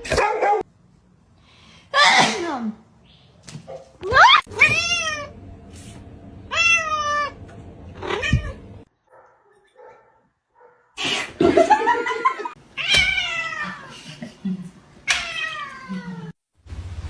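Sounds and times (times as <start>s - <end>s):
cat yowling: 4.1s - 5.4s, 6.5s - 7.4s, 12.8s - 13.9s, 15.1s - 16.4s
cat meowing: 4.5s - 5.4s, 6.5s - 7.4s, 12.8s - 13.9s, 15.1s - 16.4s.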